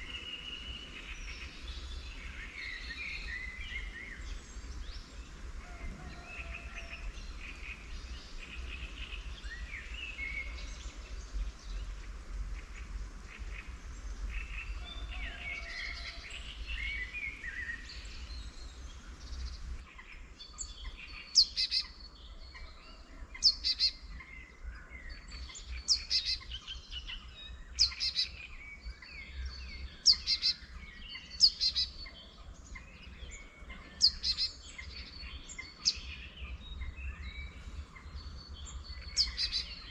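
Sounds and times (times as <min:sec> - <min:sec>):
bird singing repeated phrases: 0:00.0 - 0:39.9
songbirds chirping: 0:00.0 - 0:39.9
steady low background noise: 0:00.0 - 0:39.9.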